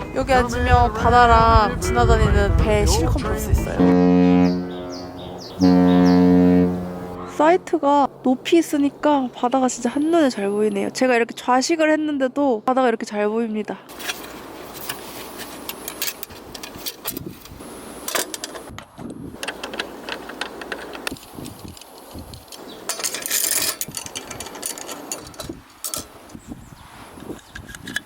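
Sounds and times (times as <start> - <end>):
wind buffeting microphone: 0.0 - 11.0, 16.3 - 18.0, 18.6 - 28.0
rattling and clicking: 19.4 - 26.1.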